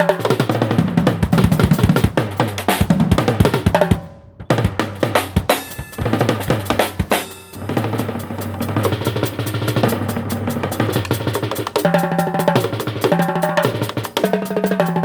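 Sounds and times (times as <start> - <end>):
drum kit playing fast: 0.0 - 15.0
sustained low amplified notes: 6.0 - 11.1.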